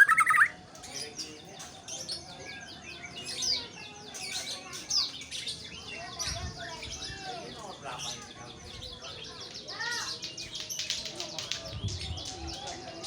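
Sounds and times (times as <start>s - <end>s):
bird warbling: 0.0s - 0.6s
birds chirping: 0.0s - 10.7s.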